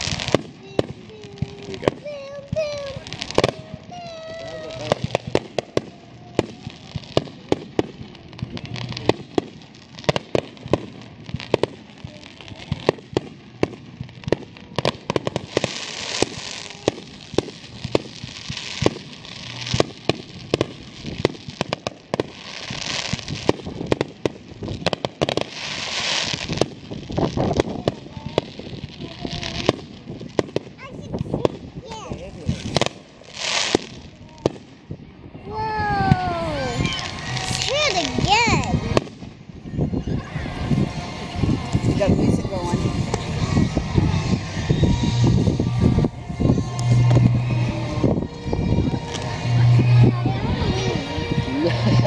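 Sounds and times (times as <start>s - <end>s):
fireworks hissing: 0.0s - 52.0s.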